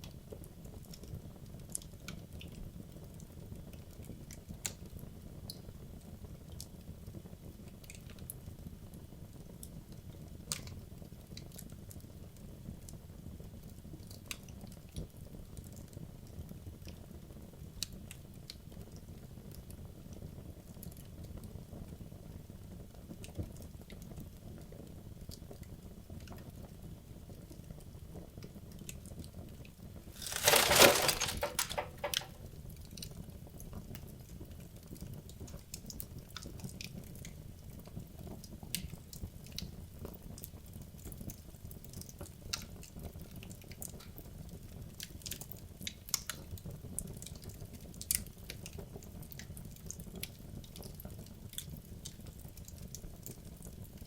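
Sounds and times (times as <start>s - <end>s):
fire crackles and pops: 30.2s - 32.4s.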